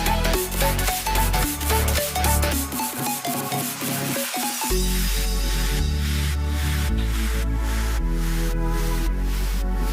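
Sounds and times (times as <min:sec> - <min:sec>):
electronic music with synth: 0:00.0 - 0:09.9
deep bass: 0:04.7 - 0:09.9.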